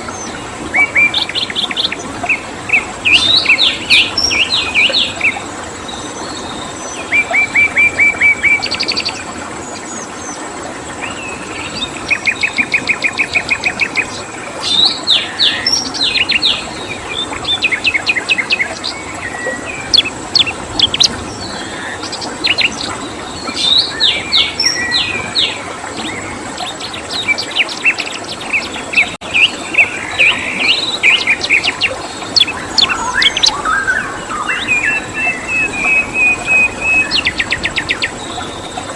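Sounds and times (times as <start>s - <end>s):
songbirds singing and chirping: 0.0s - 38.9s
steady background hiss: 0.0s - 38.9s.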